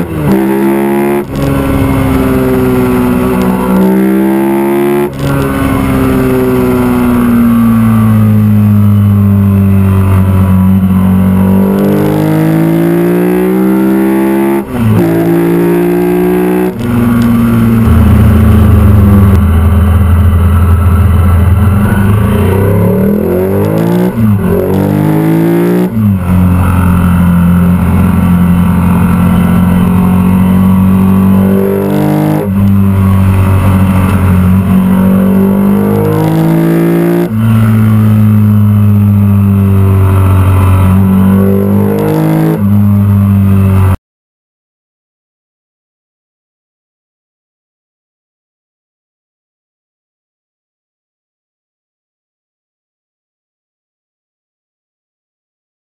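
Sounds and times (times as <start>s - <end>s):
motorcycle engine shifting gears: 0.0s - 44.0s.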